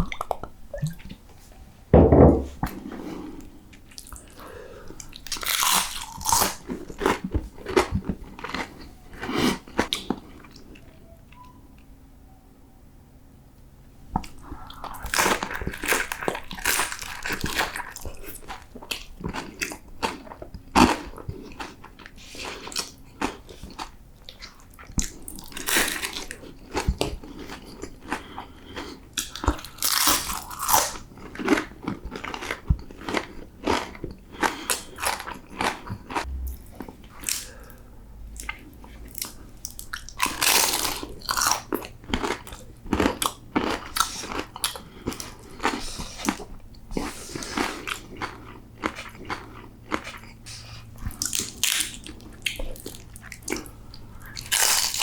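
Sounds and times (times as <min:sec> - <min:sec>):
crunching of fried food: 0:05.0 - 0:10.7, 0:14.6 - 0:55.0
wet chewing: 0:14.2 - 0:55.0.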